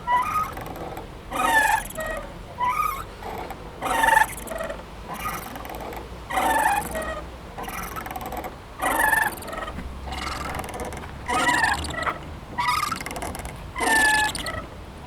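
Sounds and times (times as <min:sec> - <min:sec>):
swing chain squeaking: 0:00.0 - 0:14.7.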